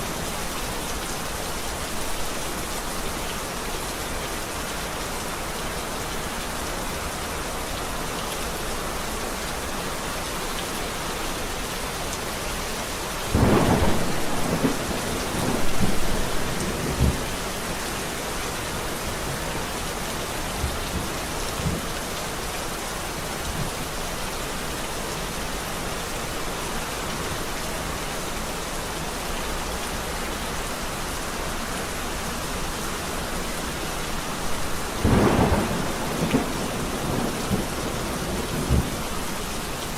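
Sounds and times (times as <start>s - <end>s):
heavy rain: 0.0s - 39.9s
thunder rumbling and crackling: 13.3s - 17.6s, 34.6s - 39.6s.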